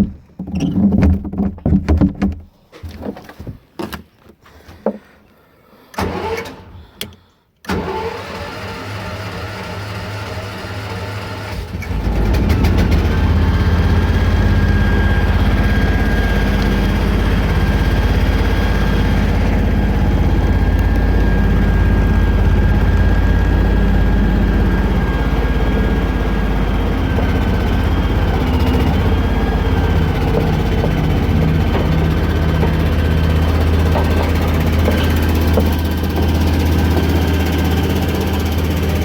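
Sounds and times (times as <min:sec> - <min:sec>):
truck engine running: 0:09.1 - 0:39.0
steady high whine: 0:12.8 - 0:39.0.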